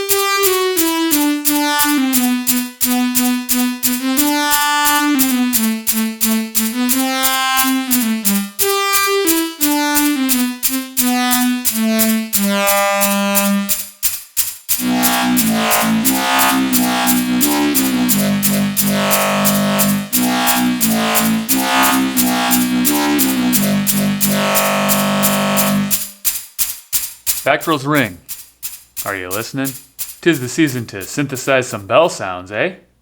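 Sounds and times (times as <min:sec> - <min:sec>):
fast ticking pulse: 0:00.0 - 0:31.8
sustained low synth notes: 0:14.8 - 0:26.0.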